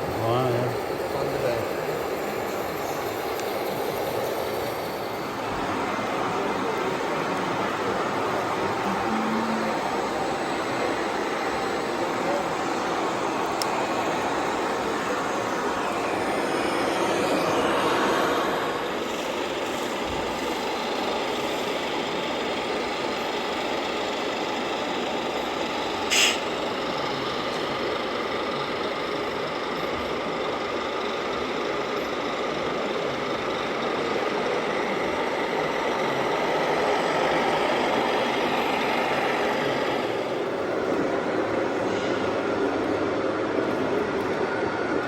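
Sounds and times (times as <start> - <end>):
toy truck engine sound: 8.7 - 14.9
sharp air hiss: 26.1 - 26.5.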